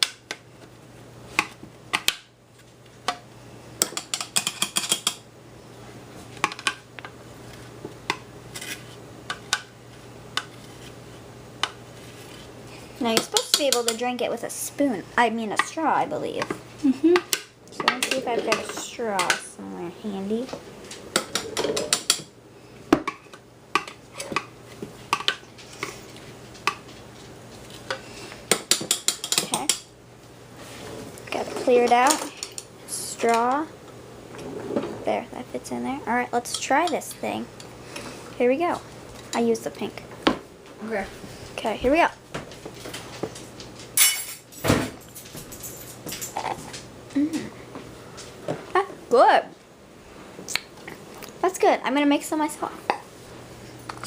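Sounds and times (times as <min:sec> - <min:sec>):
utensils and dishes clinking: 0:20.9 - 0:22.3, 0:44.0 - 0:46.8.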